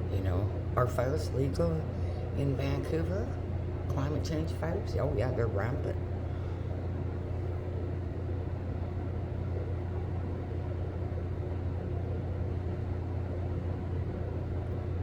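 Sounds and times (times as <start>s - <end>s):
faint steady hum: 0.0s - 15.0s
low engine rumble: 0.0s - 15.0s.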